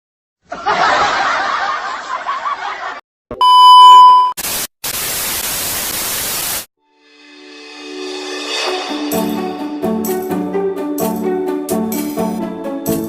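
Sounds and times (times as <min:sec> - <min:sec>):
loud electronic beep: 0:03.4 - 0:04.4.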